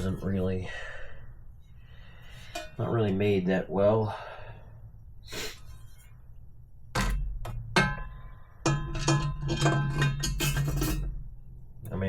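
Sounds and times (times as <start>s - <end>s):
metal parts clanking: 7.0s - 11.3s.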